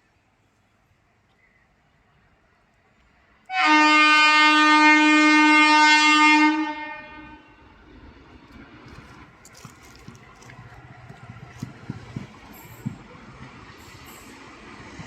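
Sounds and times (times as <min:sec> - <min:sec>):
locomotive horn blast: 0:03.5 - 0:07.9.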